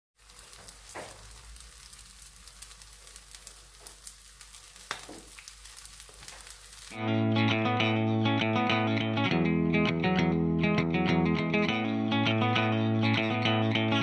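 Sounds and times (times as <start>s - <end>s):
patties sizzling in hot oil: 0.2s - 7.0s
crackling oil pops: 0.3s - 7.0s.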